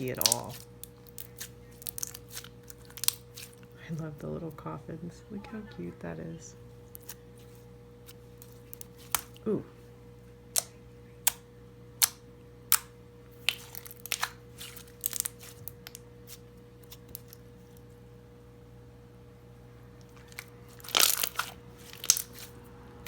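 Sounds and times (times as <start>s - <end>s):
slime clicking and popping: 0.0s - 3.5s, 12.0s - 12.9s, 20.3s - 22.5s.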